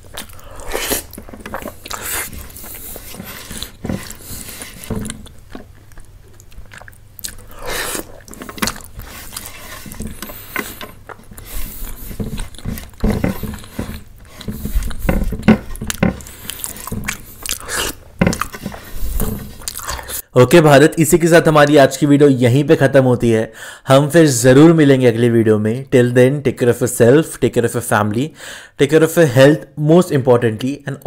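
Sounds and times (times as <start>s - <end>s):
chewing and biting food: 0.0s - 20.2s.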